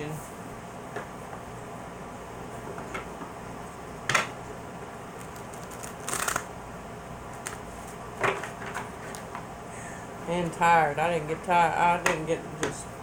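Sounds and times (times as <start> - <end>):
cards rustling: 5.2 - 6.5, 7.4 - 8.0
cards snapping: 5.2 - 6.5, 7.4 - 7.6.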